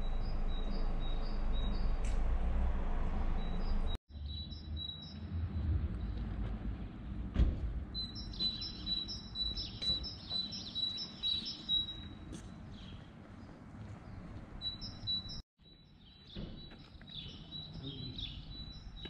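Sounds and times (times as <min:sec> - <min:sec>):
low outdoor rumble: 0:00.0 - 0:08.6
small birds chirping: 0:03.4 - 0:05.3, 0:08.0 - 0:19.0.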